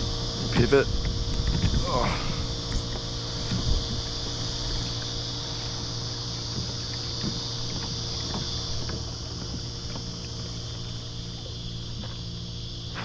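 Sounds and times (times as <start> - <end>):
boat motor humming: 0.0 - 13.0
high-pitched insect buzz: 0.0 - 13.0.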